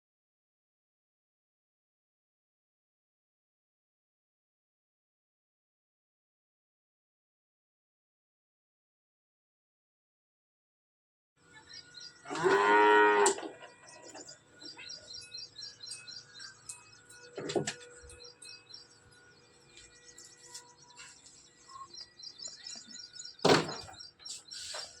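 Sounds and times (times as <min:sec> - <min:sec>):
cow mooing: 0:12.2 - 0:13.7
faint bird chirps: 0:13.6 - 0:25.0
sharp knocks: 0:23.4 - 0:24.0.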